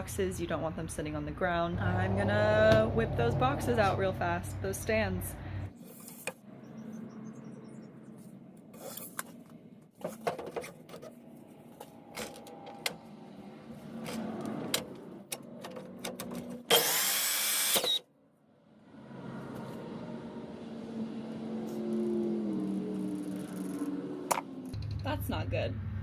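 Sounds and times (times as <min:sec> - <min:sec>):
chop saw running: 0:16.7 - 0:18.0.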